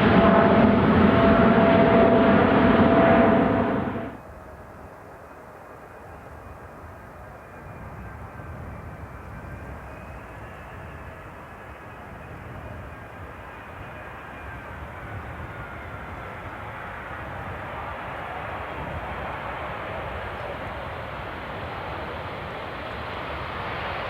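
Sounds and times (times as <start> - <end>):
distant jet engines: 0.0 - 4.3, 7.4 - 24.0.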